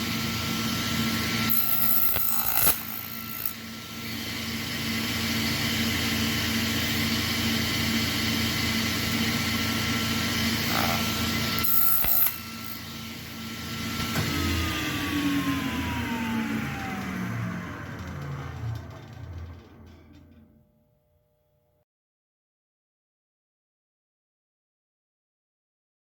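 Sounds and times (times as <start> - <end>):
table saw motor whine: 0.0 - 21.4.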